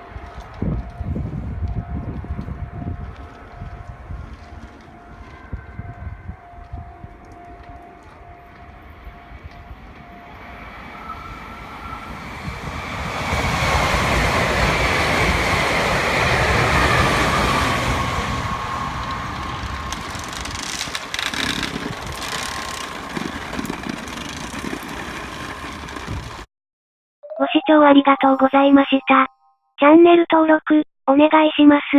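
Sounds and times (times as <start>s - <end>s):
train whine dropping in pitch: 0.0s - 20.2s
electric train rumbling by: 0.0s - 26.5s.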